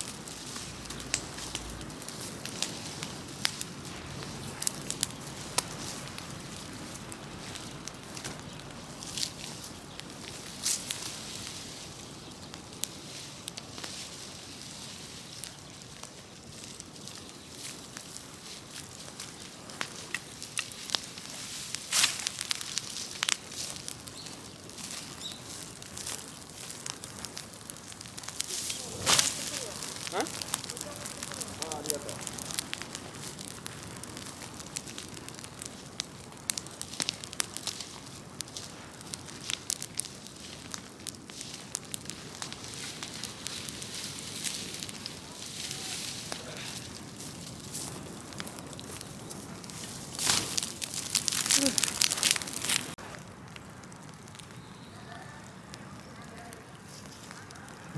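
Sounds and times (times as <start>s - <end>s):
rush of flame: 0.0s - 54.5s
fire crackles and pops: 0.0s - 57.9s.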